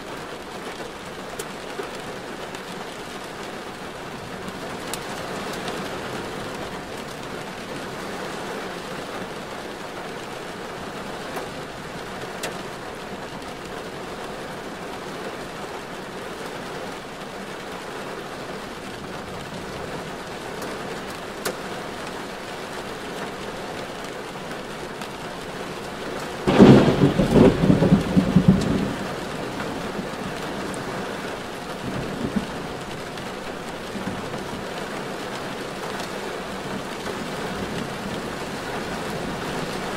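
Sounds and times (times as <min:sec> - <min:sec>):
steady rain falling: 0:00.0 - 0:39.9
loud crackling rumble: 0:26.5 - 0:34.8.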